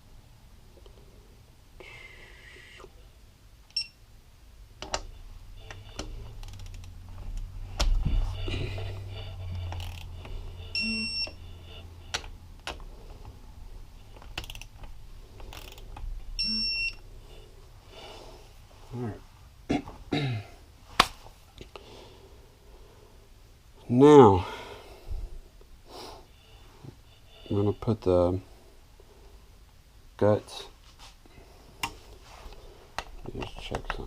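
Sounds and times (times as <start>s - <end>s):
low hum: 0.0s - 19.8s
short electronic beeps: 5.0s - 6.4s, 7.5s - 12.4s, 16.3s - 17.6s, 26.3s - 28.1s
ratchet clicks: 6.4s - 7.0s, 9.7s - 10.1s, 14.3s - 15.9s.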